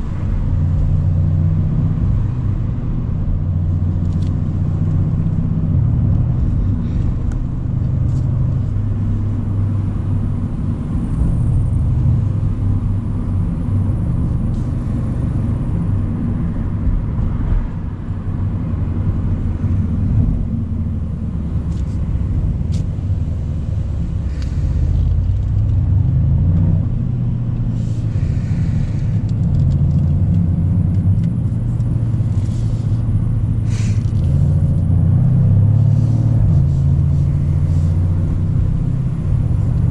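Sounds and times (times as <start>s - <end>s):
car engine rumbling while cruising: 0.0s - 39.9s.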